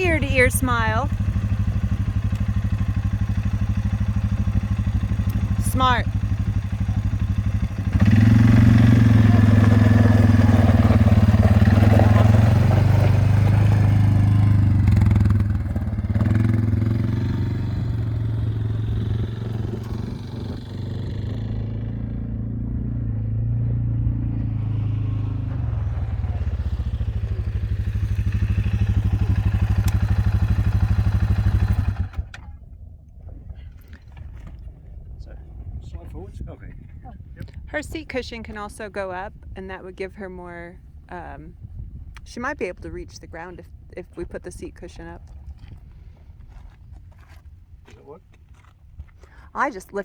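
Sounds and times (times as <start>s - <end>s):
quad bike engine running: 0.0s - 32.6s, 48.0s - 50.0s.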